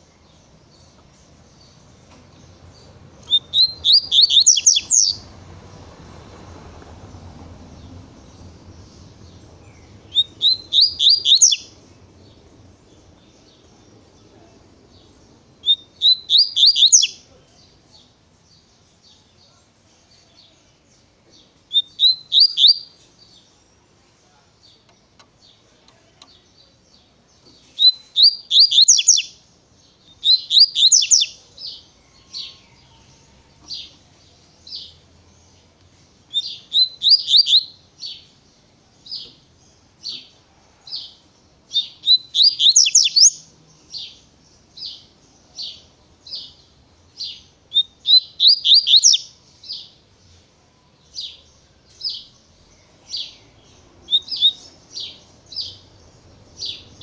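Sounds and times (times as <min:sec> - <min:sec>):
bird singing high notes: 0:03.2 - 0:05.2.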